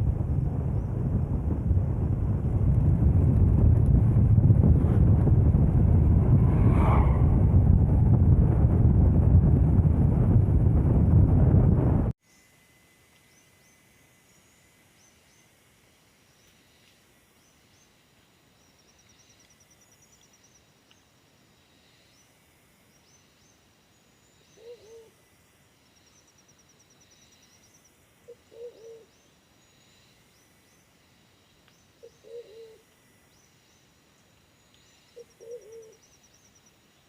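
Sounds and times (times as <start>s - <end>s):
faint high chirping: 25.9s - 37.0s
bird low short call: 28.3s - 29.2s, 32.0s - 32.8s, 35.2s - 36.1s.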